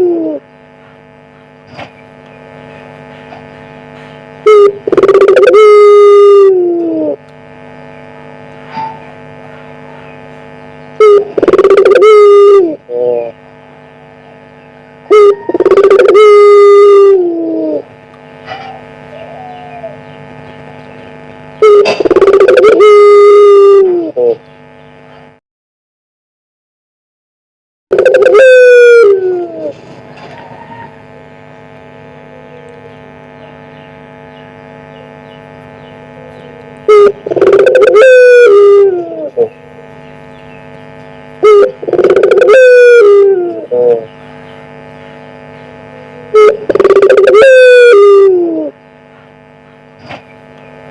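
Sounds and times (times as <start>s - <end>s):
dove cooing: 0.0s - 1.1s, 4.4s - 7.2s, 11.0s - 24.4s, 27.9s - 31.0s, 32.2s - 35.2s, 35.9s - 50.8s
electrical hum: 0.0s - 25.4s, 27.9s - 50.9s.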